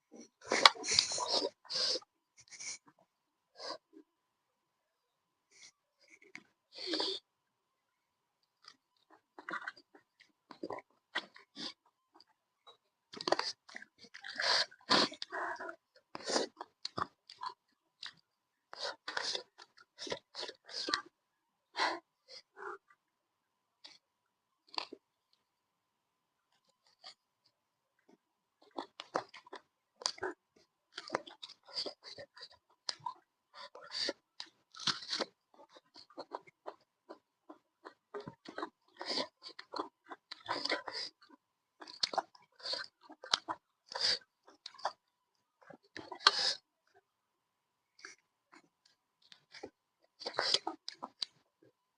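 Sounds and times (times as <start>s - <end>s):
person chewing food: 8.6s - 21.1s, 28.1s - 46.6s, 48.0s - 51.4s
person chewing: 28.6s - 45.0s.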